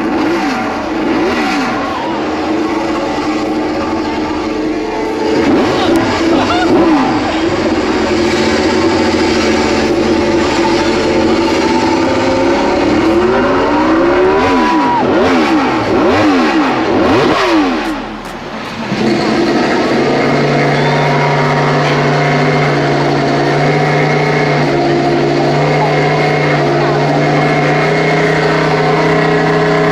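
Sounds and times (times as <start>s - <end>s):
motorcycle engine idling: 0.0s - 29.9s
motorcycle engine revving: 0.0s - 29.9s.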